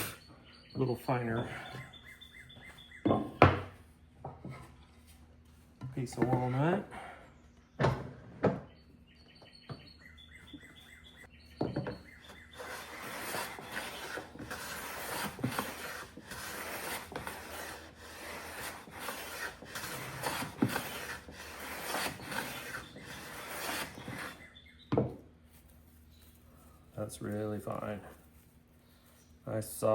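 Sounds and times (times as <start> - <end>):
bench plane scraping wood: 12.1 - 24.5.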